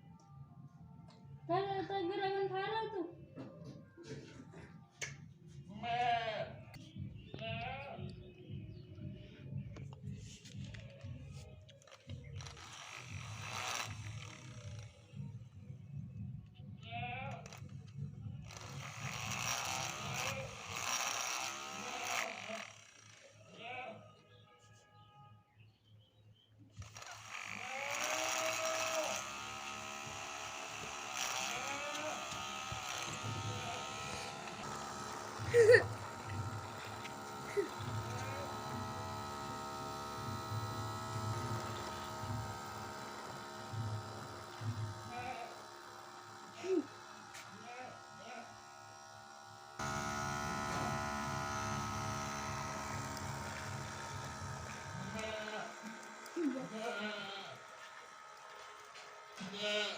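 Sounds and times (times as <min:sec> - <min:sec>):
small electric motor whining: 0:09.8 - 0:16.1, 0:17.3 - 0:23.9, 0:26.7 - 0:59.9.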